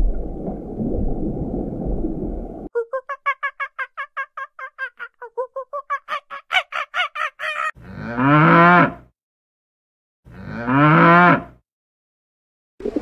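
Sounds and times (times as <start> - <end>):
cow mooing: 7.8 - 9.1, 10.3 - 11.6.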